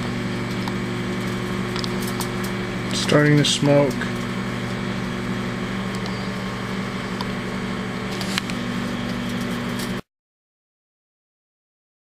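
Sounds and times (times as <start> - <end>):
microwave oven humming: 0.0 - 10.0
crackles of arcing sparks: 0.1 - 5.2.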